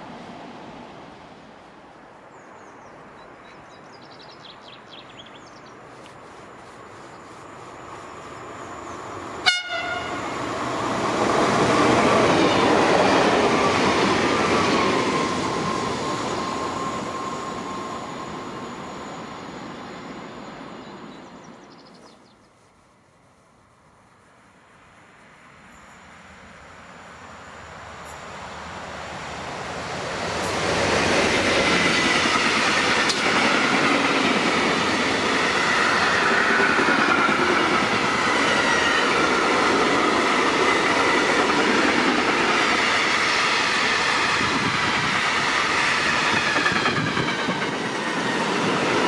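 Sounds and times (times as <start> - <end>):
train passing: 0.0 - 49.0
short train horn toot: 9.4 - 10.3.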